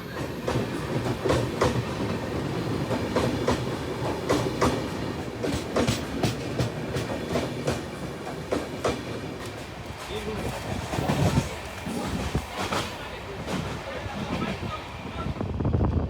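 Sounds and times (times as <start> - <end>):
wheels clacking on rails: 0.0 - 15.5
train coach rumbling: 0.0 - 16.0.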